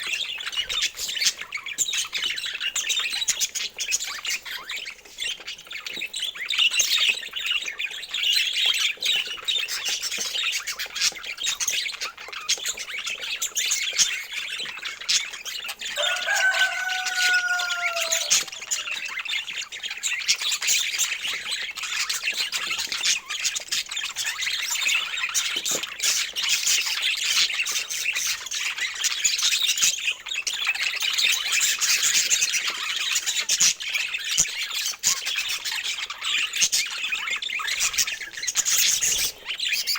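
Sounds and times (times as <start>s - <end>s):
budgerigars chattering and warbling: 0.0s - 39.9s
low falling bird call: 16.0s - 19.2s.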